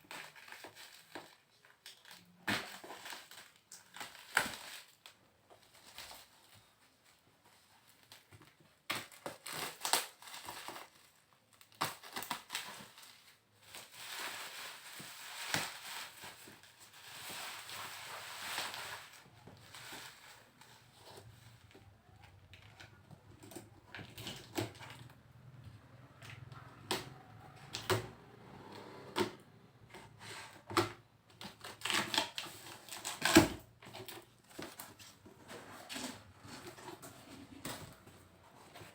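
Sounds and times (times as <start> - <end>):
cardboard and plastic rustling: 0.0 - 38.9.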